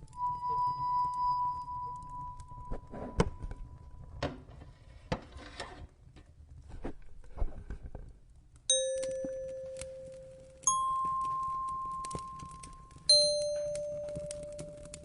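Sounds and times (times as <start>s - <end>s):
wood fire crackling and popping: 0.0s - 15.0s
bell-like chime: 0.2s - 2.7s, 8.7s - 15.0s
held musical tone: 8.7s - 15.0s.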